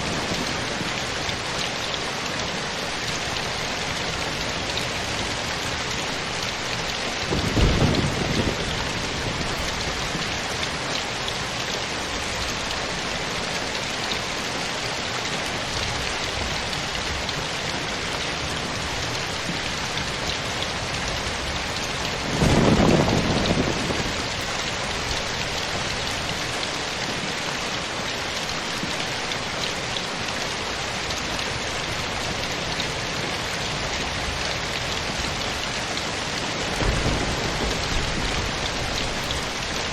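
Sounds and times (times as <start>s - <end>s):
steady rain falling: 0.0s - 39.9s
low rumbles of thunder: 7.2s - 10.3s, 21.4s - 26.1s, 36.6s - 39.9s.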